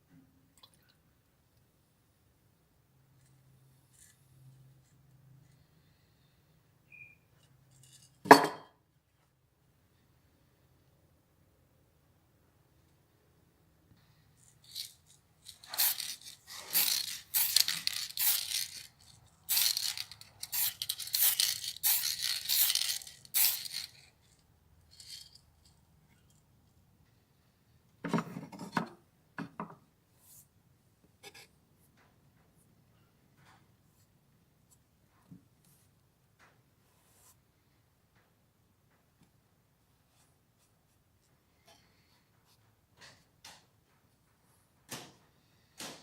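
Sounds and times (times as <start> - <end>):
scraping and rubbing: 14.4 - 25.4.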